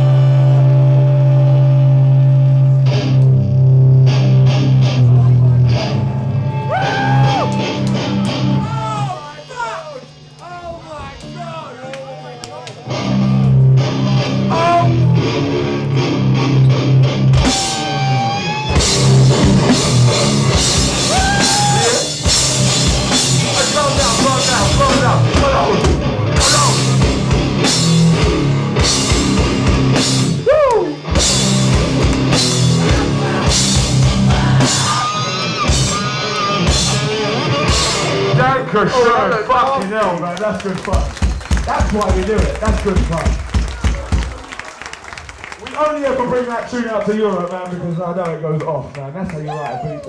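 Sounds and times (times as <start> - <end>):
hardcore band playing live: 0.0 - 39.4, 40.0 - 44.6
shouted vocals: 21.0 - 22.2, 32.8 - 35.3, 49.4 - 50.0.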